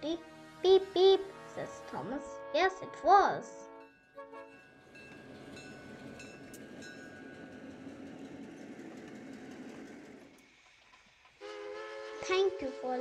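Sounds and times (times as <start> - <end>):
train rumbling along track: 4.4 - 13.0.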